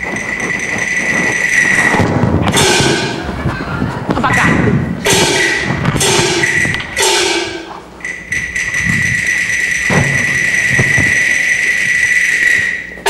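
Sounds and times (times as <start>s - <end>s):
high ringing tone: 0.0s - 3.2s, 5.1s - 13.0s
gong strikes: 1.7s - 3.3s, 4.4s - 12.0s
low drum thumps: 9.8s - 11.3s.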